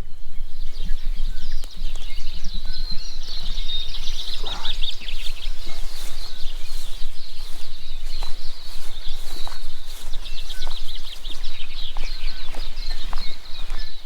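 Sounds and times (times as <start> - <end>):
birds chirping and trilling: 0.0 - 14.0.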